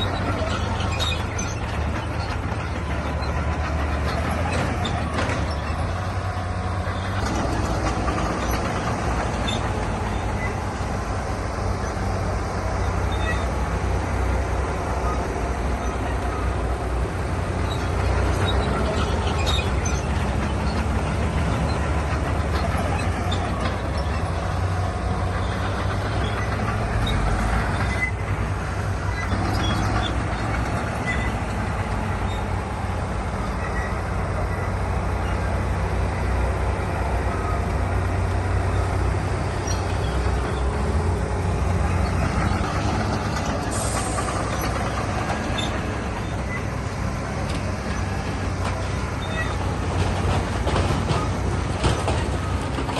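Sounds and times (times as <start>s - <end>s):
metallic clanks and scraping: 0.0s - 10.8s, 17.6s - 32.5s, 39.6s - 52.9s
diesel earthmoving machinery running: 0.0s - 52.9s.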